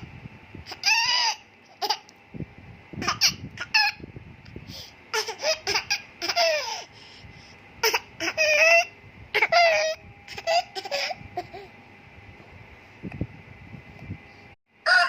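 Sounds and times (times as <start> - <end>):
child laughing and squealing: 0.7 - 2.0, 5.1 - 7.0, 7.8 - 11.7.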